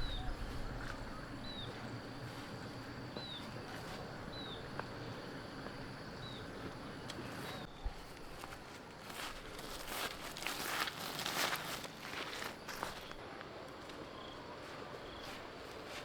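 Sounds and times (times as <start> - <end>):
bird chirping: 0.0 - 7.9
outdoor background hiss: 0.0 - 16.0.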